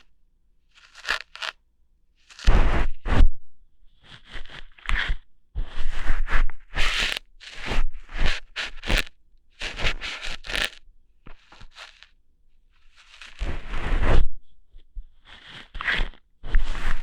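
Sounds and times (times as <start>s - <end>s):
crunchy scratches on microphone: 0.7s - 1.6s, 2.2s - 3.3s, 3.9s - 17.0s.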